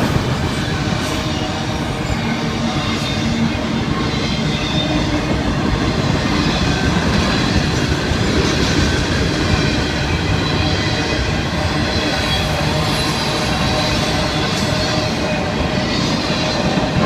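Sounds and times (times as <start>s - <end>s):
freight train wheels on rail: 0.0s - 17.0s.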